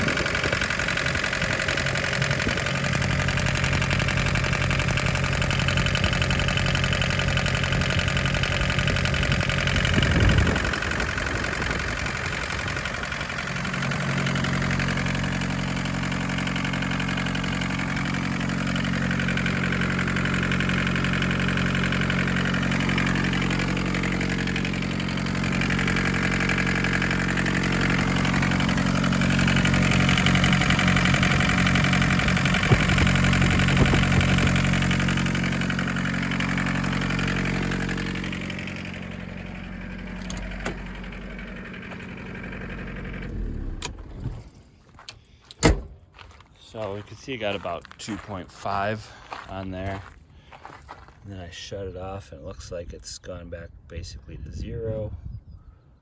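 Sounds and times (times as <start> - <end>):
diesel engine idling: 0.0 - 52.8
loud thump: 45.6 - 46.0.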